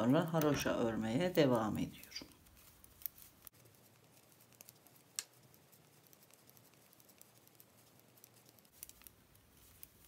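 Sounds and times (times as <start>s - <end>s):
knitting needles clicking: 4.2s - 10.0s.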